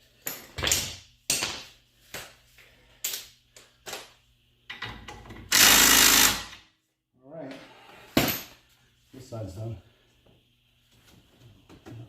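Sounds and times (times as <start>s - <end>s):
power tool running: 5.5s - 6.6s.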